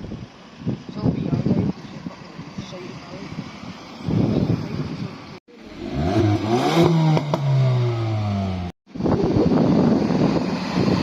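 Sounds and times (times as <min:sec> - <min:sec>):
car engine revving: 0:05.6 - 0:08.7.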